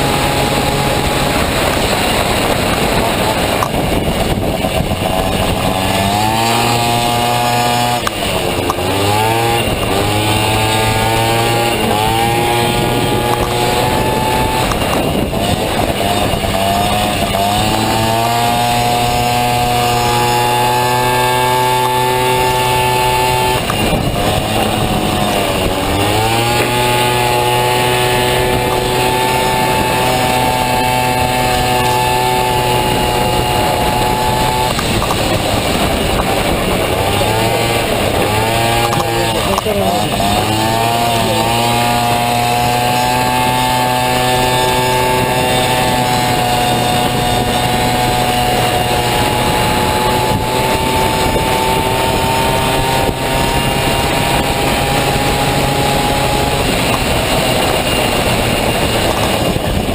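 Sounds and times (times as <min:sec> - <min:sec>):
two-stroke scooter engine revving: 0:00.0 - 0:59.9.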